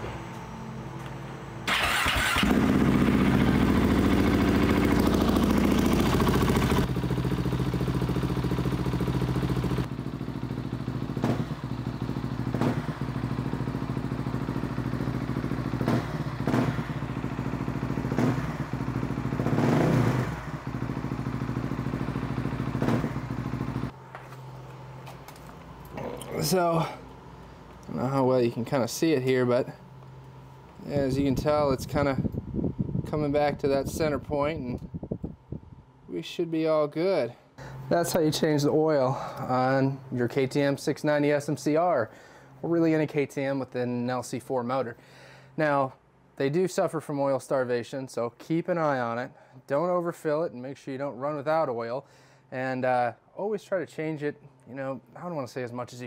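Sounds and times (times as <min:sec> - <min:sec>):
motorcycle engine idling and revving: 0:00.0 - 0:28.9.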